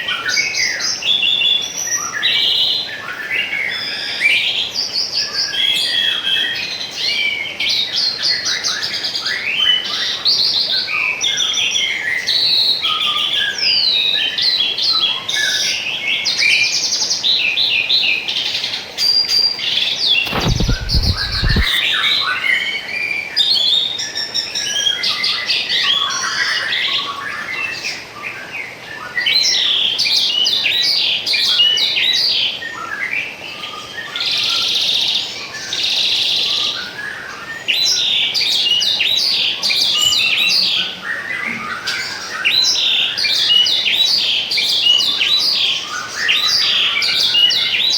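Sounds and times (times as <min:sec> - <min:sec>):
songbirds chirping and trilling: 0:00.1 - 0:47.9
brief low rumble: 0:20.3 - 0:21.8.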